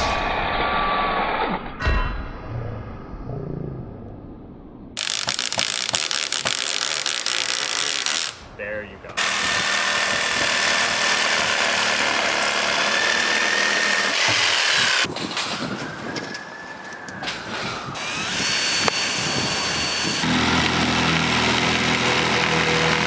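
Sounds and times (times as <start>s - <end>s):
power drill driving screws: 5.0s - 8.4s, 9.2s - 15.1s, 18.0s - 20.3s.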